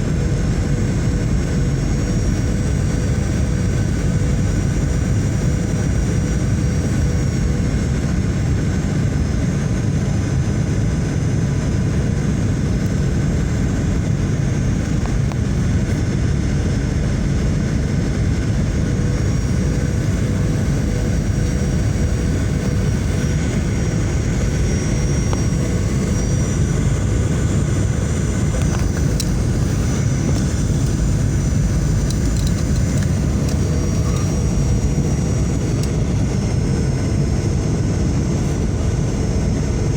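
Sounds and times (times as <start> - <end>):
engines and airflow rushing: 0.0 - 39.9
faint steady hum: 0.0 - 39.9
thin high whine: 17.9 - 39.8.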